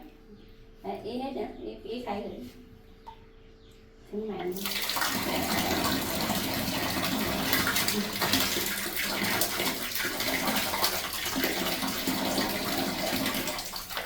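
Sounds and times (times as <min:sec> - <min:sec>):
faint pump hum: 0:00.0 - 0:14.0
water running from a tap: 0:04.5 - 0:14.0.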